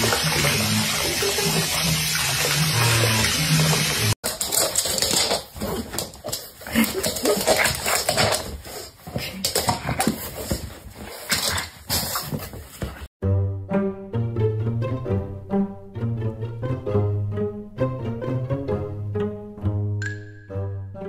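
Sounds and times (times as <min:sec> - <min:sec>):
water spraying into a bathtub: 0:00.0 - 0:04.2.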